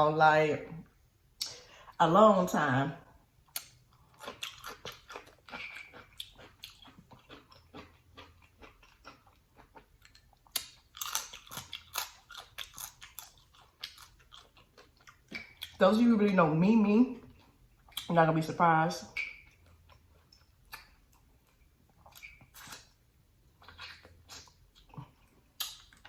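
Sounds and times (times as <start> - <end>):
wet chewing and crunching: 3.4 - 15.9, 17.2 - 18.3, 19.0 - 26.0.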